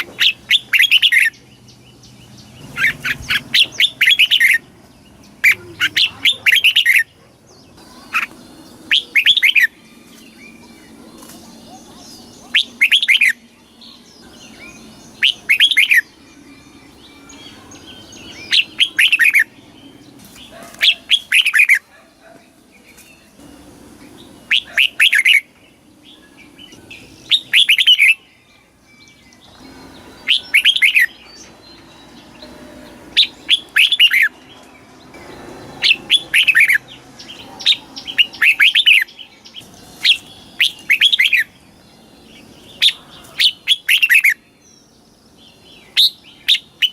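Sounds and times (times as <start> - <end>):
bird singing whistled phrases: 8.9 - 10.9, 11.6 - 19.5, 24.5 - 25.5, 26.7 - 28.3, 28.9 - 31.4, 33.2 - 34.3, 37.7 - 41.5, 45.8 - 46.9.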